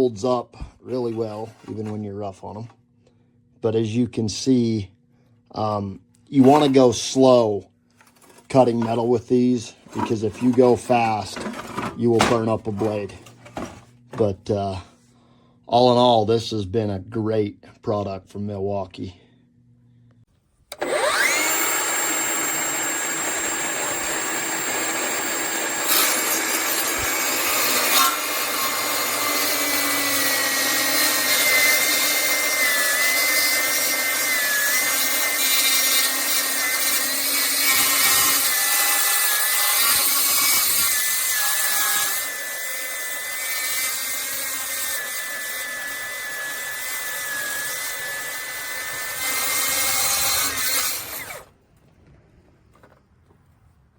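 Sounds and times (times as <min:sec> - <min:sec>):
circular saw cutting metal: 0:20.7 - 0:51.5.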